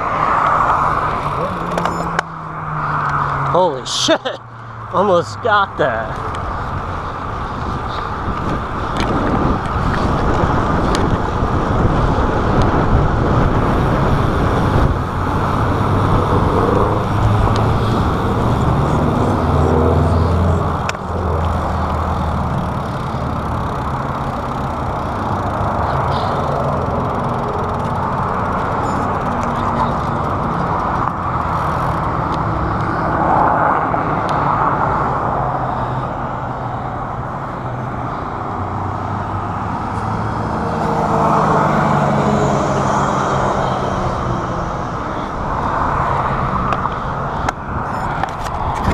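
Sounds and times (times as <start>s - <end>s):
road traffic passing: 0.0s - 48.9s
vehicle engine hum: 0.0s - 48.9s
wind rushing over camera: 6.2s - 48.9s.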